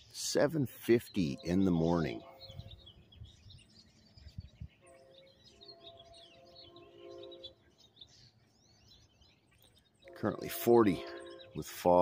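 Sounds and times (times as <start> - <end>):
faint birds chirping: 0.0 - 12.0
faint held chord: 10.0 - 12.0.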